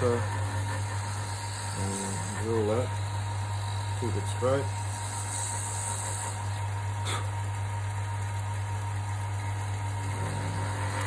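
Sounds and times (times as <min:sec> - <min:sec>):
drill boring into wood: 0:00.0 - 0:06.6
lathe motor humming: 0:00.0 - 0:11.0.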